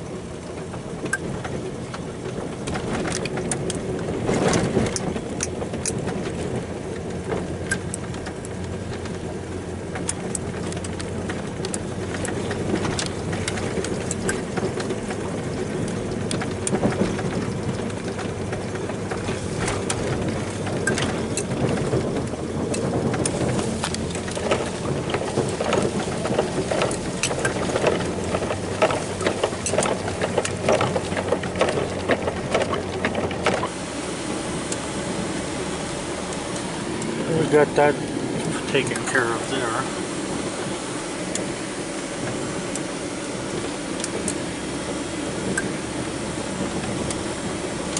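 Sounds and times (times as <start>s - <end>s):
truck engine running: 0.0s - 47.9s
sharp clicks and knocks: 0.6s - 9.3s, 9.9s - 33.8s.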